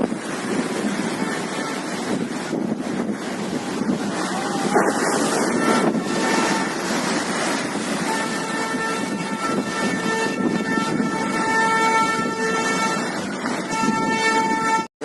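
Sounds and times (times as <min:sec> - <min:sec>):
waves crashing: 0:00.0 - 0:14.8
wind buffeting microphone: 0:00.0 - 0:14.9.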